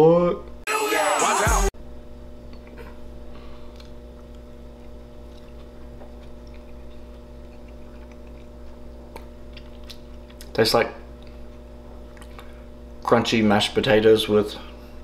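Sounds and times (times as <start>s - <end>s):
low electrical hum: 1.8s - 15.0s
chewing crispy food: 3.6s - 12.6s.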